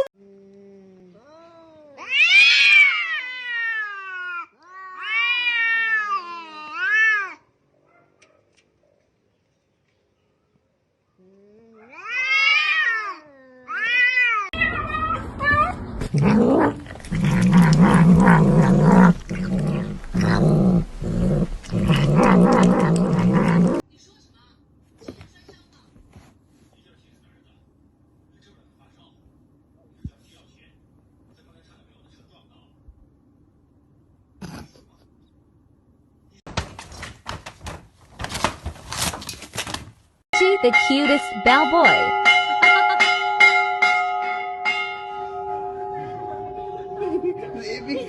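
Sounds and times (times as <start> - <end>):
cat meowing: 2.0 - 7.4, 11.8 - 15.8
animal growling: 16.0 - 23.8.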